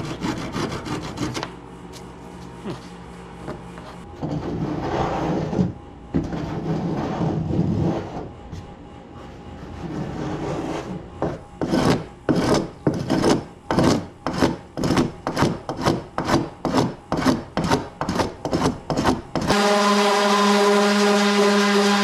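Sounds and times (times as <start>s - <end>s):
sanding strokes on wood: 0.0s - 1.5s
steady motor hum: 0.0s - 22.0s.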